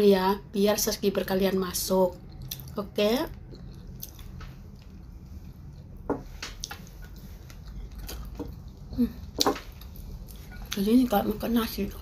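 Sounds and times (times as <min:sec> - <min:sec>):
person chewing food: 0:02.1 - 0:10.8.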